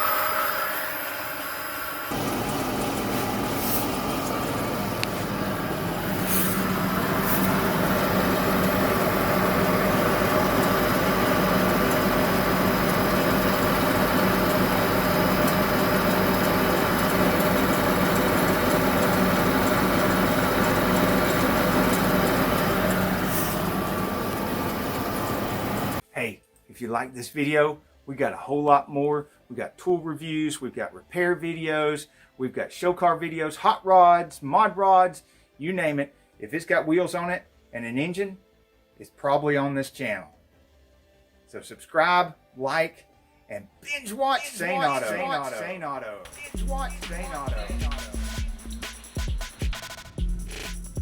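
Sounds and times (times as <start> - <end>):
wheel hub bearing humming: 0.0 - 26.0, 46.3 - 51.0.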